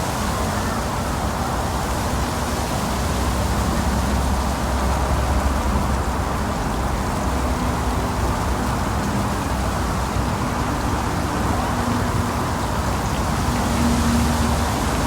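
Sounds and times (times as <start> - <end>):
outdoor noise: 0.0 - 15.0.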